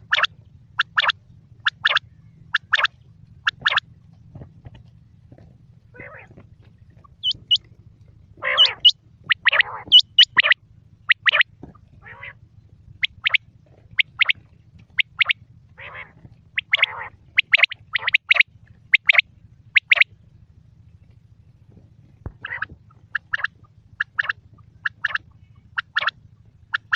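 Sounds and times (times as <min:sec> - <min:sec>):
harsh rasping bird calls: 0:00.0 - 0:03.8, 0:05.9 - 0:07.7, 0:08.3 - 0:12.4, 0:13.0 - 0:20.1, 0:22.3 - 0:26.9
quail calling: 0:00.0 - 0:03.8, 0:05.9 - 0:07.7, 0:08.3 - 0:12.4, 0:13.0 - 0:20.1, 0:22.2 - 0:26.9.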